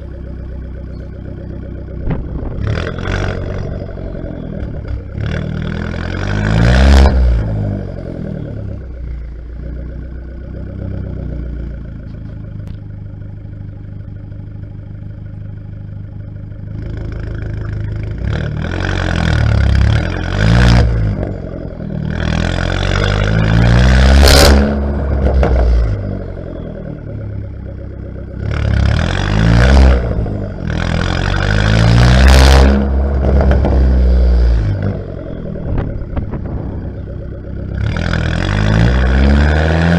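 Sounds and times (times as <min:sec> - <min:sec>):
car engine idling: 0:00.0 - 0:06.6, 0:07.2 - 0:39.8
car engine revving: 0:00.0 - 0:13.2, 0:16.6 - 0:39.9.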